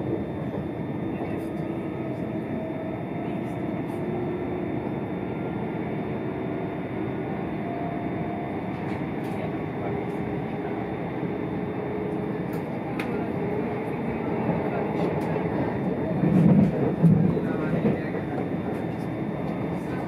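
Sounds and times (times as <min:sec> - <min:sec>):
train wheels rumbling on track: 0:00.0 - 0:07.0, 0:07.6 - 0:20.0.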